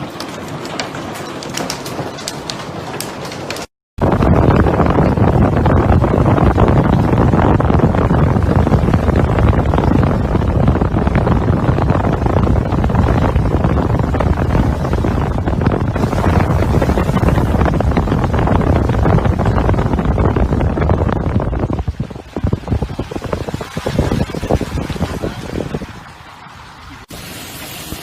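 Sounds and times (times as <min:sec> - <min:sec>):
wind buffeting microphone: 0:04.0 - 0:27.1.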